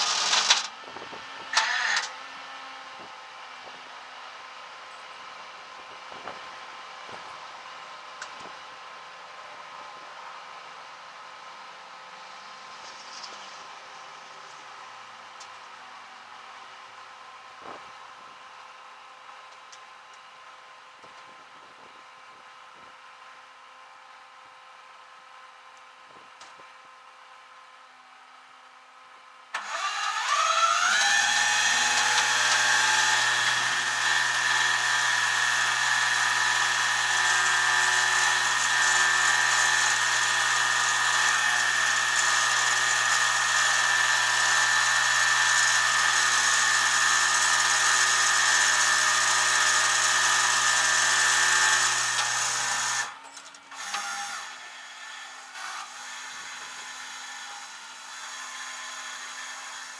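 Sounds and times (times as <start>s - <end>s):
power tool motor whine: 0.0s - 3.8s, 29.5s - 59.9s.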